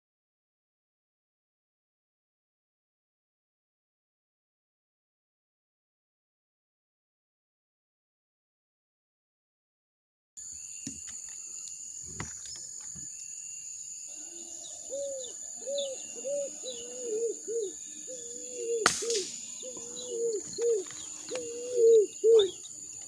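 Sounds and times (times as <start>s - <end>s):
faint high chirps: 10.4s - 23.0s
high-pitched insect drone: 10.4s - 23.0s
bird hooting: 14.1s - 23.0s
sharp click: 18.9s - 19.6s.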